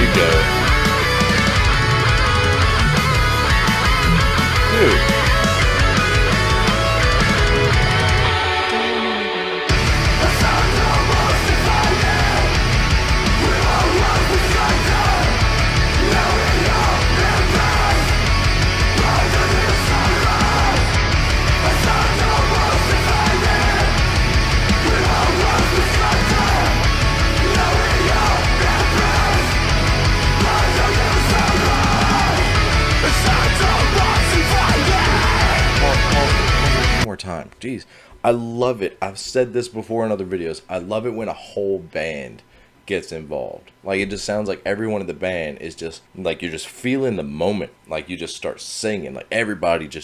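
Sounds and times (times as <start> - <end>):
heavy metal music: 0.0 - 37.1.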